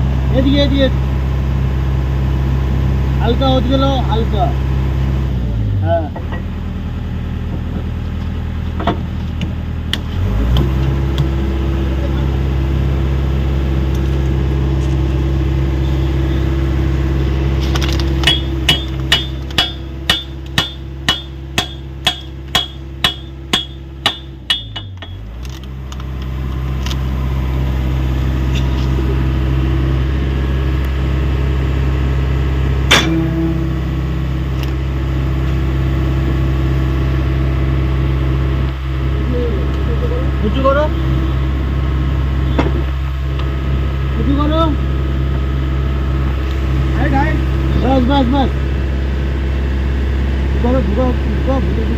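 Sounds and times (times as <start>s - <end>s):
excavator diesel engine running: 0.0s - 51.9s
loud metal clank: 18.2s - 25.3s, 32.9s - 33.8s.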